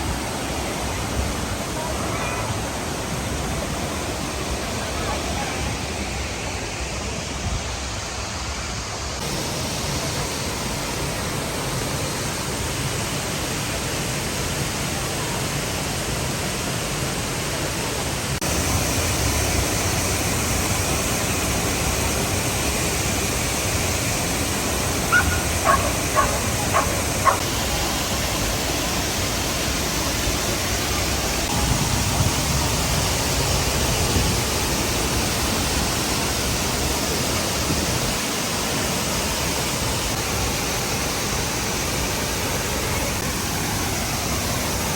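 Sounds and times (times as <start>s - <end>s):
waterfall rushing: 0.0s - 44.9s
dog barking: 25.1s - 27.4s.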